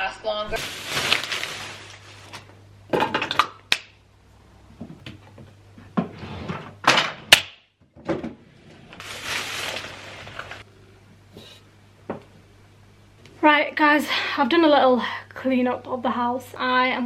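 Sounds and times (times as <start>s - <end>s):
faint steady hum: 0.0s - 7.3s, 7.9s - 17.0s
rustling: 0.5s - 2.5s, 9.0s - 10.6s.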